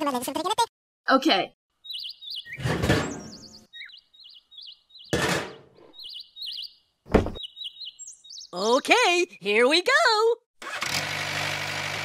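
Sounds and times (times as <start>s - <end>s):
small birds chirping: 1.7s - 9.9s
sharp thump: 7.1s - 7.4s.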